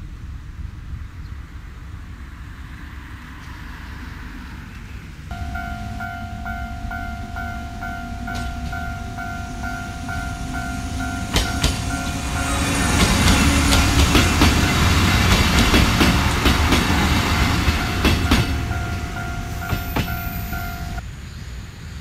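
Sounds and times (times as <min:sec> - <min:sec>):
level-crossing warning bell: 0:05.3 - 0:21.0
train rumble: 0:05.3 - 0:21.0
train wheels clacking over rail joints: 0:05.4 - 0:21.0.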